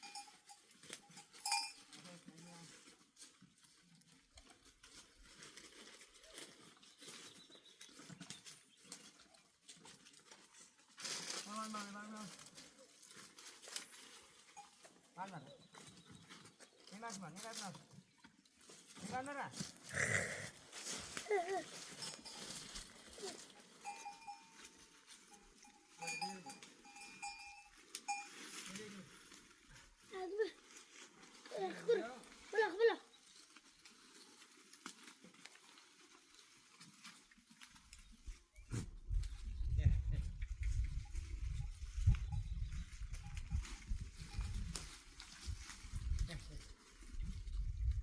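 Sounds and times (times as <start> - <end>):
ringing bell-like tone: 1.4 - 1.8, 25.3 - 28.5
faint livestock calls: 19.8 - 21.4.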